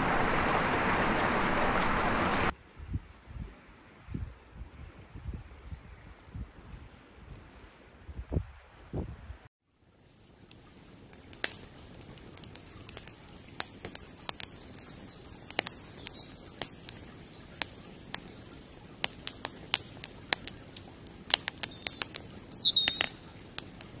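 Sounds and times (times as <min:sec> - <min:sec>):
sharp ticks: 0:11.2 - 0:18.4, 0:21.3 - 0:24.0
small birds chirping: 0:11.3 - 0:24.0.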